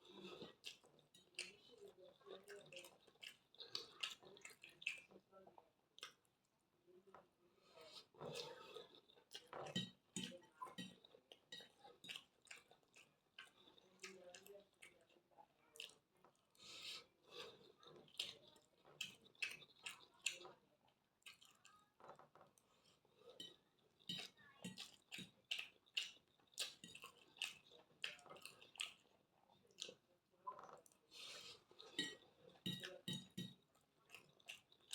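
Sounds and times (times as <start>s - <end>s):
chewing and mouth smacks: 0.0s - 5.2s, 6.0s - 6.3s, 7.9s - 20.6s, 21.2s - 34.9s
cutlery clicking on plate: 32.0s - 33.6s.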